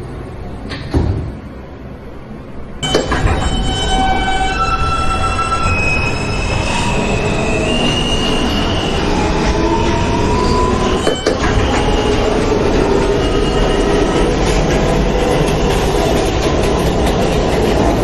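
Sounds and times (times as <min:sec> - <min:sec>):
subway train rumble: 0:00.0 - 0:18.0
high wheel squeals: 0:02.8 - 0:16.2.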